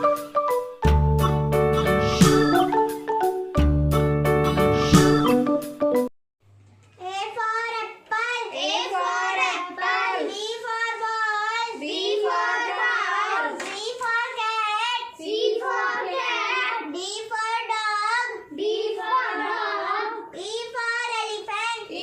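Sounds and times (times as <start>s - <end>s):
girl singing a rhyme: 7.0s - 22.0s.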